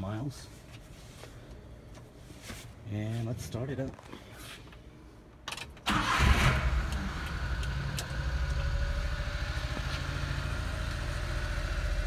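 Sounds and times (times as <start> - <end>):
small engine starting and idling: 5.9 - 12.0.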